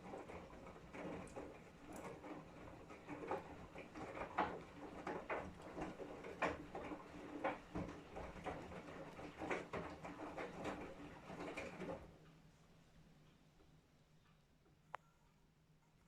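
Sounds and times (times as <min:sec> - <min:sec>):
laundry tumbling in washing machine: 0:00.0 - 0:12.3
washing machine motor hum: 0:00.0 - 0:12.5.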